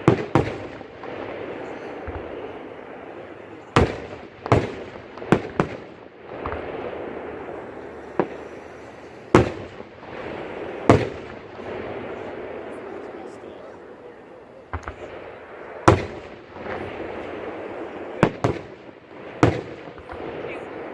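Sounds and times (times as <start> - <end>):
steady background noise: 0.0 - 20.9
fireworks shells bursting: 3.6 - 12.3.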